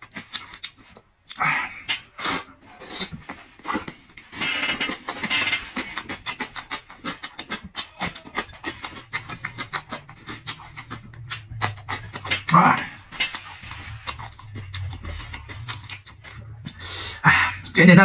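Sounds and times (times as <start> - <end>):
chewing with wet mouth clicks: 0.0 - 1.4, 5.0 - 17.8
noisy crunching: 0.0 - 16.9.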